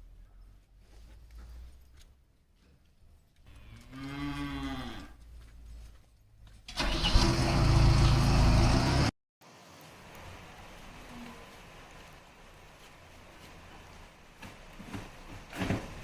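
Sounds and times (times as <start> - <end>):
cow mooing: 3.5 - 5.2
loud engine running: 6.8 - 9.1.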